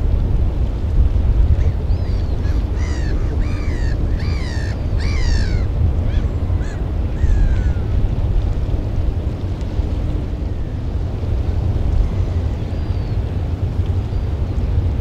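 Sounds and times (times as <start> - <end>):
steady low rumble: 0.0 - 15.0
harsh bird calls: 1.6 - 7.8.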